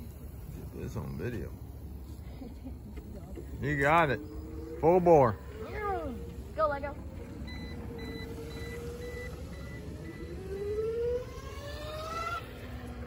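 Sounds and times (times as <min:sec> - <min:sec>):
hub motors whining: 0:00.0 - 0:13.0
wheels rumbling on pavement: 0:00.0 - 0:13.0
short high beeps: 0:07.5 - 0:10.8.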